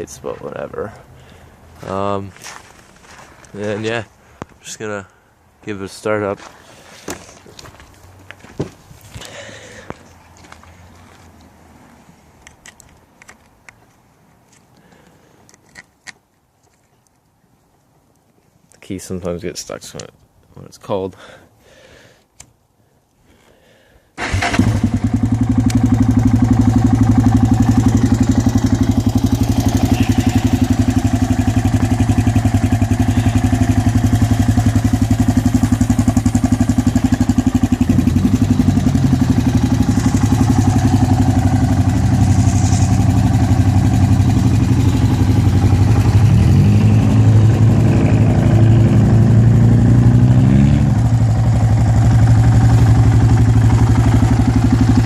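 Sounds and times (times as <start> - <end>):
quad engine revving: 24.2 - 55.0
quad engine starting and idling: 24.2 - 55.0.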